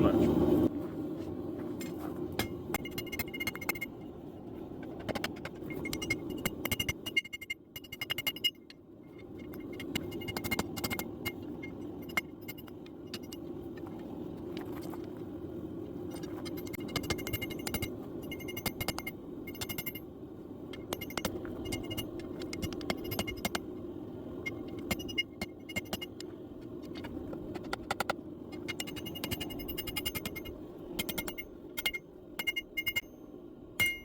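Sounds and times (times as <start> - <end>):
steady low hum: 0.0 - 34.0
metallic clinks and scrapes: 4.8 - 15.1, 16.0 - 20.0, 20.7 - 23.6, 28.5 - 34.0.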